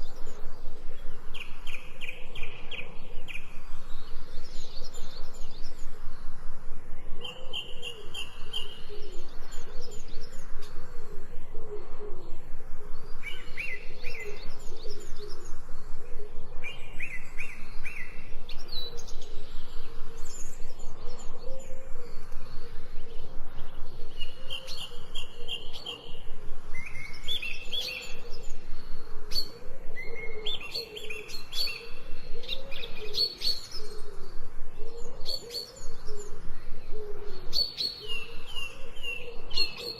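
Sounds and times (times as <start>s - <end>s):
birds trilling and chirping: 0.0s - 39.9s
lower wavering bird notes: 0.0s - 39.9s.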